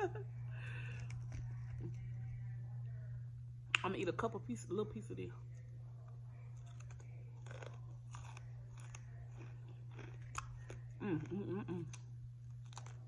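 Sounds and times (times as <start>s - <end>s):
steady low hum: 0.0s - 13.0s
crunchy chewing: 0.7s - 2.2s, 6.0s - 13.0s
bite into a pickle: 6.6s - 13.0s
person humming mmm: 10.4s - 12.1s.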